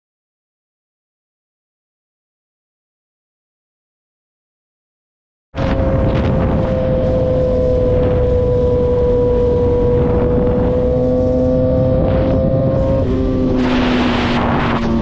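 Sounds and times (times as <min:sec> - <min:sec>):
car engine at steady rev: 0:05.6 - 0:15.0.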